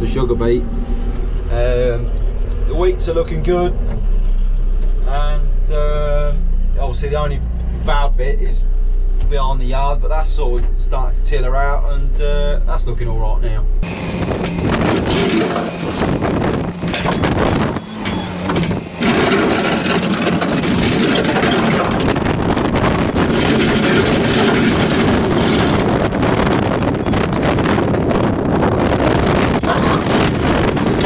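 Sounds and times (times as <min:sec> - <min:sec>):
heavy machinery engine running: 0:13.6 - 0:31.0
wind on microphone: 0:13.8 - 0:31.0
stone crunching and scraping: 0:14.3 - 0:26.4, 0:29.6 - 0:31.0.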